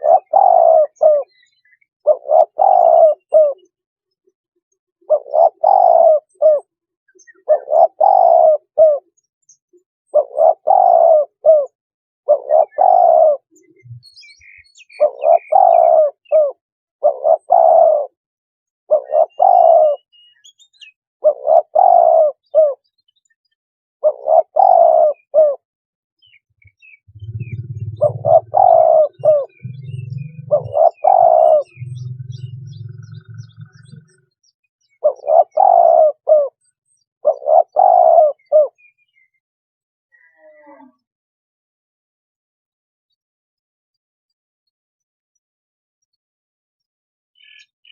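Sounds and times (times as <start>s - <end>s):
dove cooing: 0.0s - 3.6s, 5.1s - 9.1s, 10.1s - 14.1s, 14.9s - 18.2s, 18.9s - 20.2s, 21.2s - 22.8s, 24.0s - 25.6s, 26.6s - 36.6s, 37.2s - 38.8s
small birds chirping: 0.0s - 18.2s, 18.9s - 25.6s, 26.2s - 39.4s, 40.1s - 41.1s, 47.4s - 47.9s
low hum: 27.1s - 28.6s, 29.5s - 30.8s, 31.7s - 33.9s.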